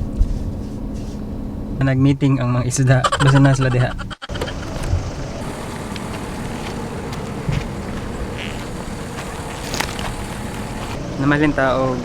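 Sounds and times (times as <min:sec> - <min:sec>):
faint even hum: 0:04.3 - 0:12.0.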